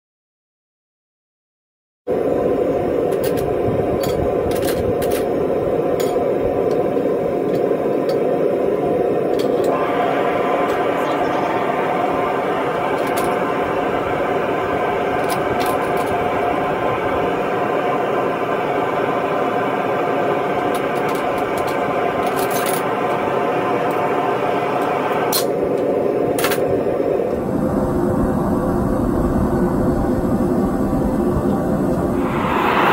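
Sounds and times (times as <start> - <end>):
furnace burner roaring: 2.1 - 32.9.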